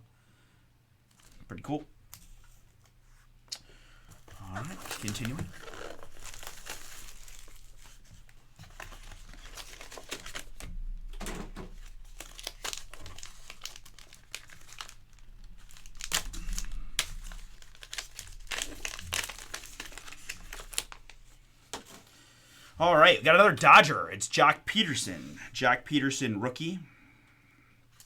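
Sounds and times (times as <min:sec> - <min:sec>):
wrapper crinkling and tearing: 0:04.2 - 0:10.6, 0:11.8 - 0:22.1.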